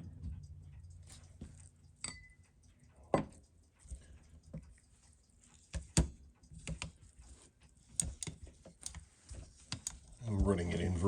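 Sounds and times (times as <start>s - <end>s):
metal and glass clinks: 2.0s - 2.4s
short ringing clink: 2.0s - 2.4s.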